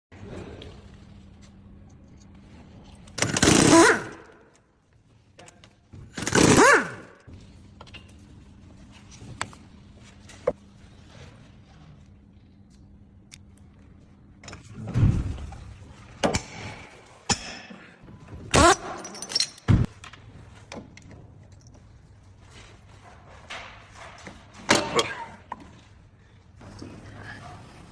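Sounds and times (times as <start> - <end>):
power tool bursts: 3.2 - 4.3, 18.5 - 19.0.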